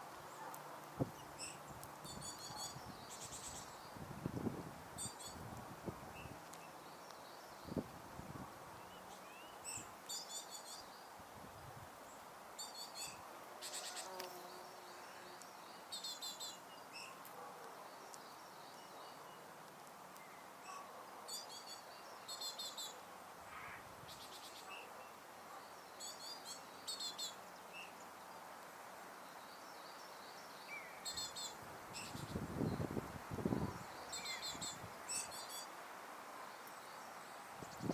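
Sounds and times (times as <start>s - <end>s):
steady background hiss: 0.0s - 37.9s
songbirds trilling: 29.3s - 35.7s.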